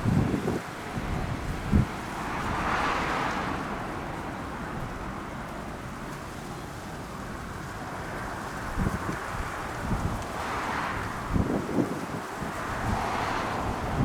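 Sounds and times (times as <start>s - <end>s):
wind buffeting microphone: 0.0s - 2.8s, 8.6s - 14.0s.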